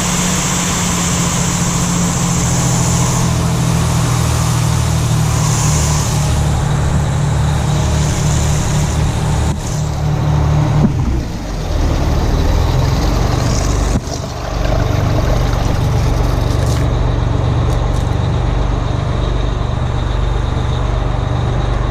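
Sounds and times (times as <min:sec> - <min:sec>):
hiss: 0:00.0 - 0:10.5
fire truck diesel engine running: 0:00.0 - 0:21.9.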